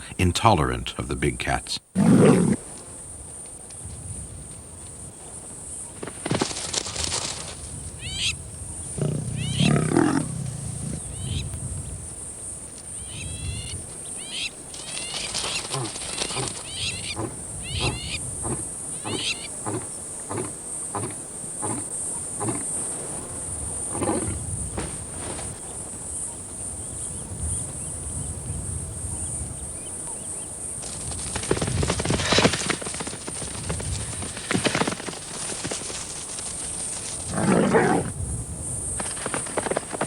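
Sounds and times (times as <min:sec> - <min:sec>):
animal grunts: 0:01.9 - 0:02.7, 0:08.9 - 0:11.3, 0:15.6 - 0:23.2, 0:23.8 - 0:25.0, 0:37.3 - 0:38.2
bird chirping: 0:08.0 - 0:11.5, 0:13.0 - 0:15.8, 0:16.4 - 0:22.6.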